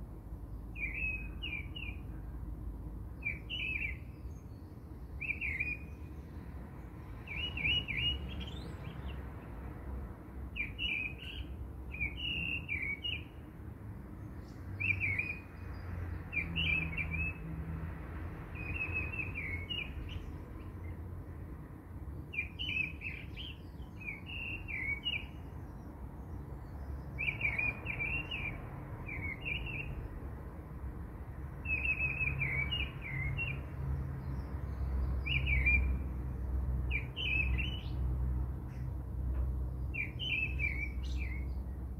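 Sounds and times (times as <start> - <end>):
small bird twittering: 5.2 - 6.0.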